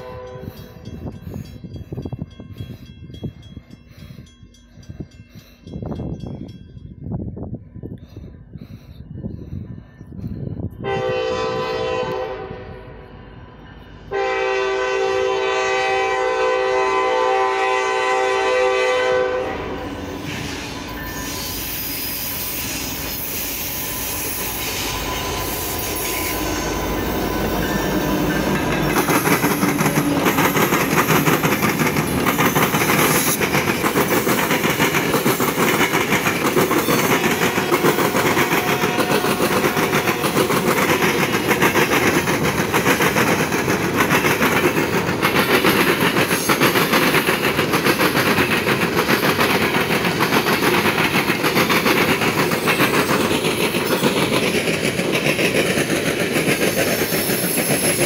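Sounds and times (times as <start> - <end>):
locomotive air horn: 0.0 - 0.6, 10.8 - 13.0, 14.1 - 20.1, 37.2 - 40.5
train wheels clicking over rail joints: 20.2 - 58.0.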